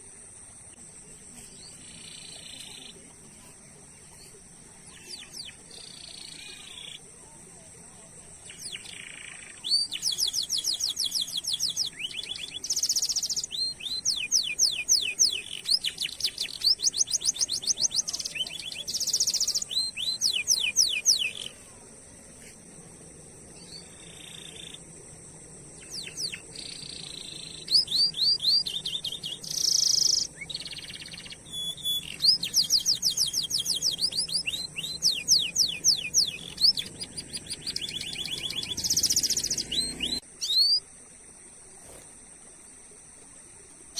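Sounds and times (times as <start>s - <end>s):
canary singing trills: 1.6s - 7.0s, 8.4s - 21.6s, 23.6s - 24.8s, 25.7s - 40.8s.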